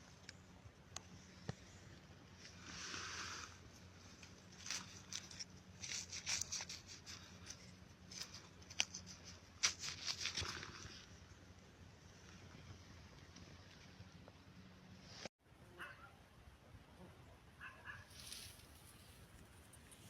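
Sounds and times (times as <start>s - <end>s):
leaf litter rustling and crackling: 2.5s - 11.1s, 18.1s - 20.0s.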